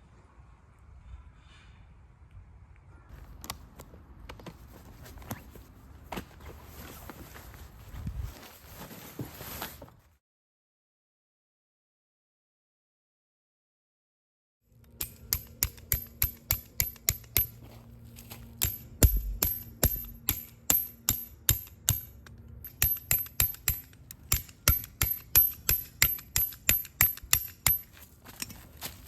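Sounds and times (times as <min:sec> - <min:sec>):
sharp metallic taps: 0:14.9 - 0:17.7, 0:18.6 - 0:28.6.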